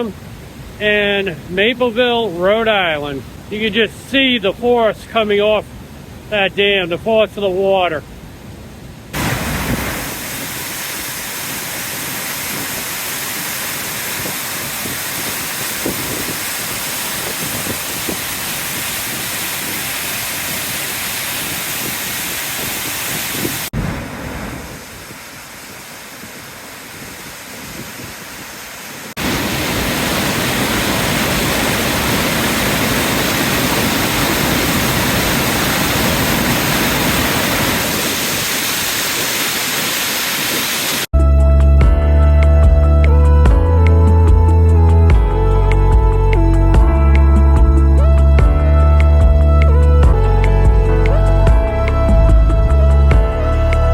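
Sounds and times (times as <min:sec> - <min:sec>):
water pouring over a dam: 0:09.2 - 0:23.7, 0:24.8 - 0:41.1.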